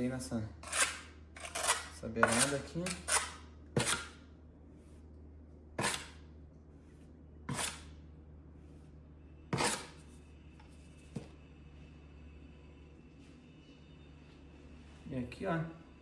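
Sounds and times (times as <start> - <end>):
trowel scraping stone: 0.6 - 4.2, 5.8 - 6.2, 7.5 - 7.9, 9.5 - 10.0.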